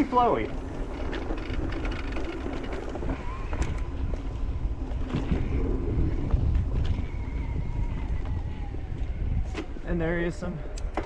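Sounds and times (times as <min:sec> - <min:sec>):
tyres rumbling on dirt: 0:00.0 - 0:04.1
wind buffeting microphone: 0:00.0 - 0:11.0.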